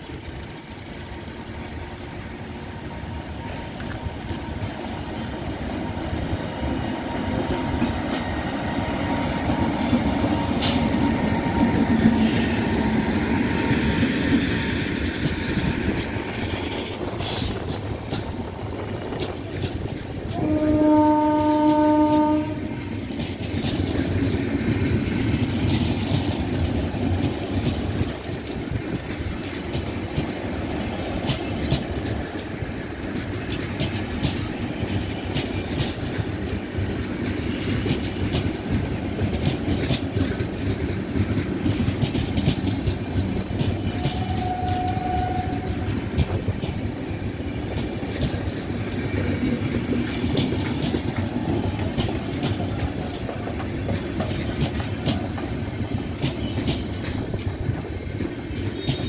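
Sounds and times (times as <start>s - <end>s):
train wheels rumbling on rails: 0.0s - 59.0s
clicking over rail joints: 15.0s - 59.0s
train horn blast: 20.3s - 23.0s, 43.9s - 46.1s.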